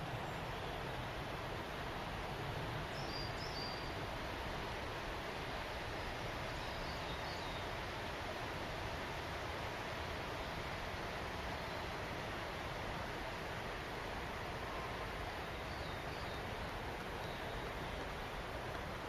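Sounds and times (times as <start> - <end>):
running water rushing: 0.0 - 19.0
faint bird chirps: 2.9 - 4.0.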